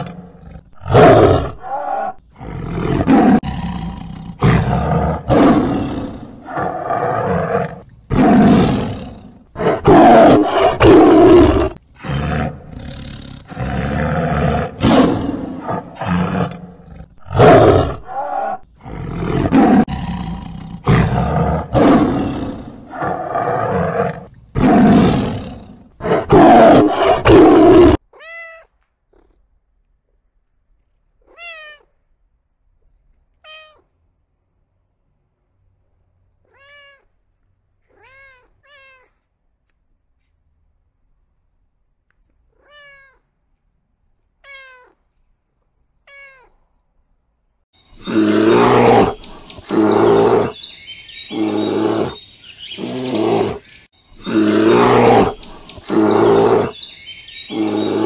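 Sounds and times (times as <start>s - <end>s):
large animal roaring: 0.0s - 28.0s, 48.0s - 50.6s, 51.2s - 58.0s
faint short meows: 33.4s - 33.9s, 36.5s - 37.1s, 46.1s - 46.6s.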